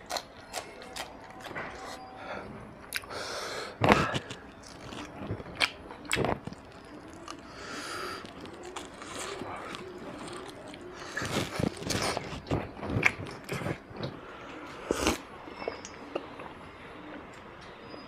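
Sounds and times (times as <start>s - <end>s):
open-mouthed chewing: 0.0s - 17.6s.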